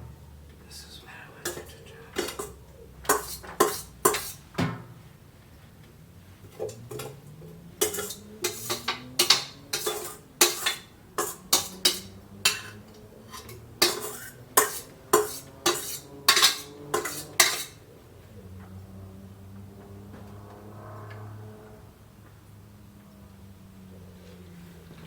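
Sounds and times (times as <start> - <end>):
spoon scraping cooking pot: 1.4 - 4.5, 6.4 - 17.9.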